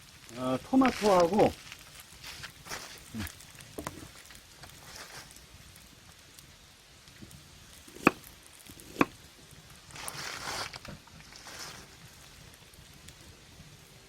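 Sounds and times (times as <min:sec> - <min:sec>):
rustling: 0:00.6 - 0:05.9, 0:09.8 - 0:12.4.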